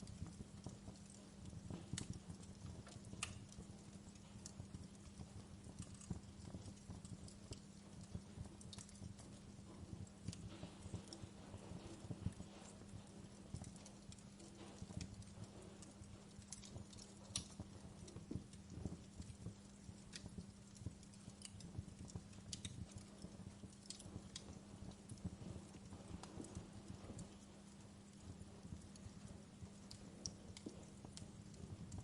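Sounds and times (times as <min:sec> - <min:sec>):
faint low hum: 0:00.0 - 0:32.0
wood fire crackling: 0:00.0 - 0:32.0.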